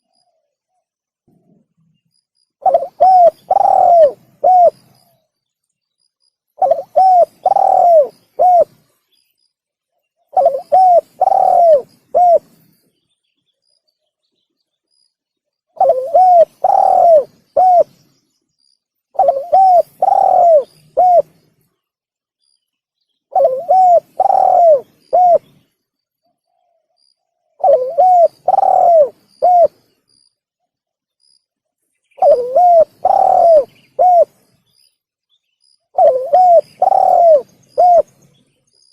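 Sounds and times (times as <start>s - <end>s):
dove cooing: 2.6s - 5.2s, 6.6s - 8.8s, 10.3s - 12.6s, 15.8s - 18.0s, 19.1s - 21.4s, 23.3s - 25.6s, 27.6s - 29.9s, 32.2s - 34.4s, 35.9s - 38.2s.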